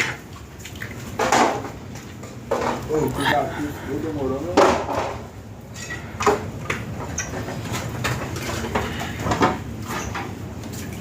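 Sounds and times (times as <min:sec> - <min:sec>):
knocks and clatter: 0:01.2 - 0:01.8.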